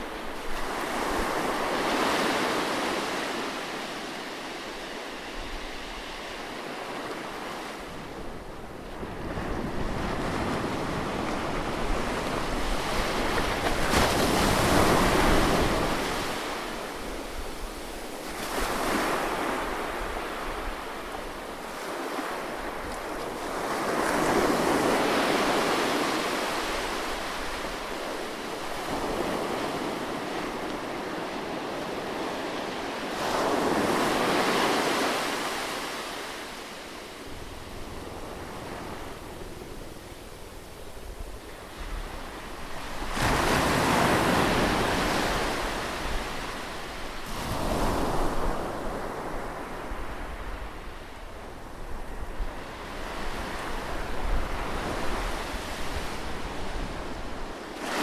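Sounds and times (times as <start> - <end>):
sea waves breaking: 9.0 - 50.9.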